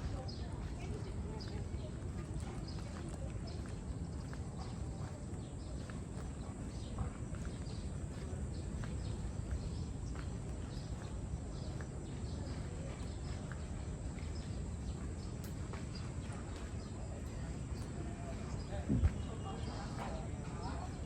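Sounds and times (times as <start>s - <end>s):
footsteps on hard path: 0.0s - 14.5s
wind: 0.0s - 21.0s.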